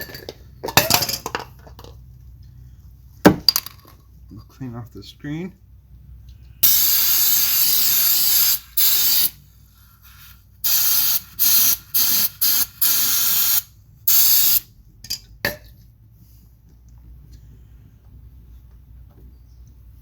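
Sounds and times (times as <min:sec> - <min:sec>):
aerosol can spraying: 0:06.6 - 0:09.4, 0:10.0 - 0:14.6.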